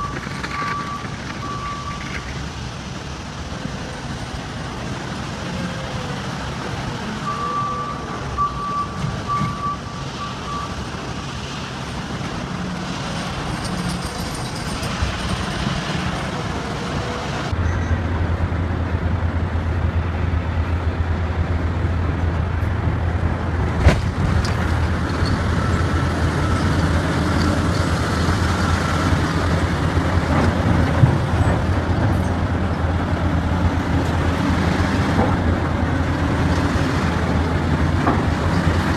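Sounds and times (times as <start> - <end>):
heavy diesel machinery running: 0.0 - 38.9
backup alarm beeping: 7.3 - 10.7.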